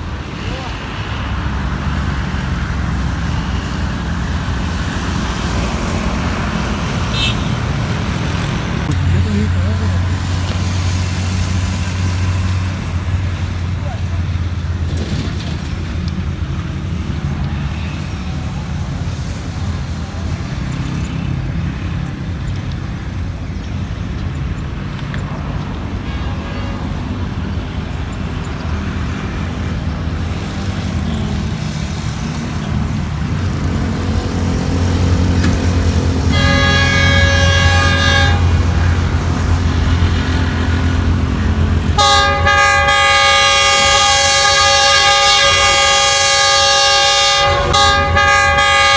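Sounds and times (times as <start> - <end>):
locomotive horn blasts: 3.2 - 12.6, 25.9 - 27.8, 33.3 - 48.9.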